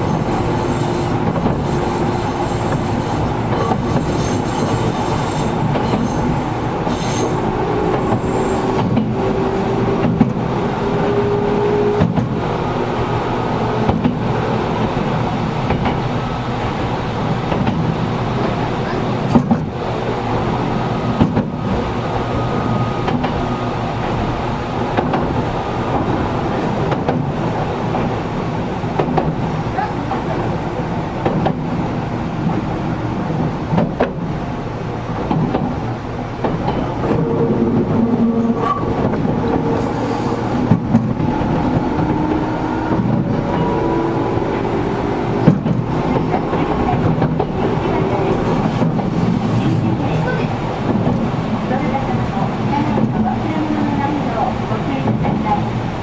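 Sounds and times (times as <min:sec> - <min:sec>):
electric railcar running: 0:00.0 - 0:56.0
steady hums: 0:35.1 - 0:55.6.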